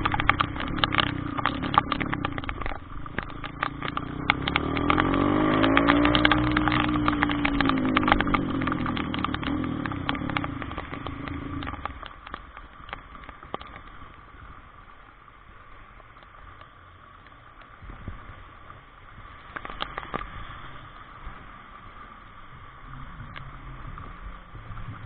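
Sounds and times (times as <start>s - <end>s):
sharp taps of drops: 0.0s - 13.8s
steady rain: 0.0s - 25.0s.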